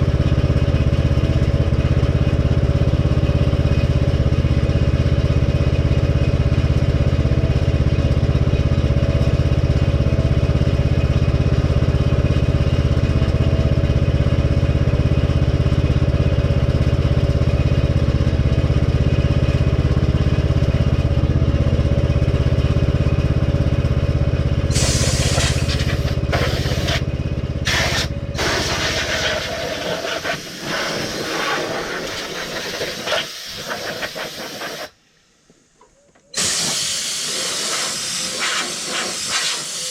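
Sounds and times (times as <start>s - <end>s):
small engine running: 0.0s - 35.0s, 36.4s - 39.9s
loud hiss of air or spray: 24.7s - 27.0s, 27.6s - 35.0s, 36.4s - 39.9s.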